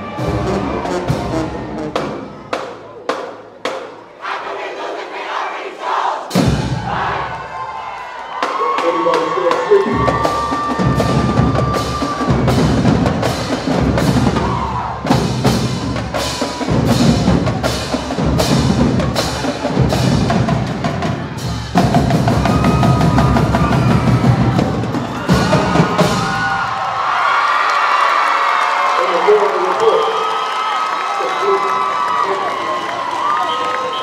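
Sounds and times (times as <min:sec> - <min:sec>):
drumline drum cadence: 0:00.1 - 0:27.2.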